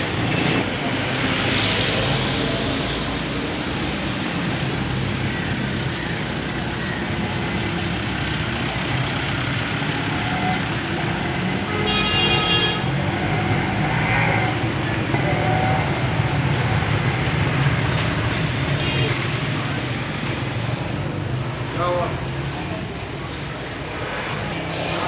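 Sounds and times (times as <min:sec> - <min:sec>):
road traffic noise: 0:00.0 - 0:25.0
vehicle horn: 0:11.7 - 0:13.0.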